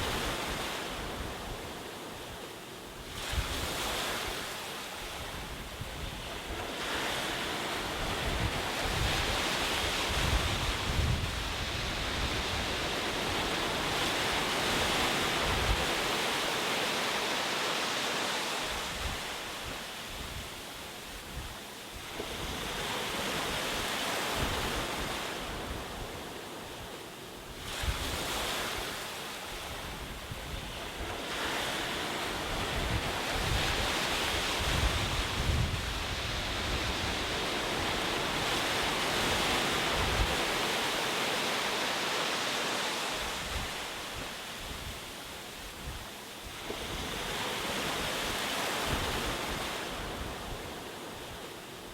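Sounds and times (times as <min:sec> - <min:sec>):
wind on microphone: 0:03.0 - 0:16.4, 0:18.5 - 0:26.9, 0:27.5 - 0:41.8, 0:42.8 - 0:51.6
ocean waves breaking: 0:22.1 - 0:51.9.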